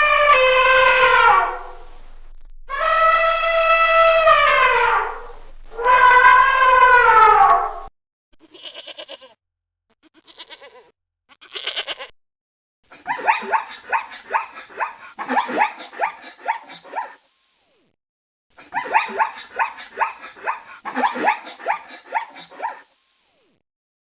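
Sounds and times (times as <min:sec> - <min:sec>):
goat bleating: 0:08.5 - 0:09.4, 0:10.1 - 0:12.1, 0:12.9 - 0:17.2, 0:18.6 - 0:22.8
animal yelping calls: 0:12.9 - 0:17.2, 0:18.6 - 0:23.0.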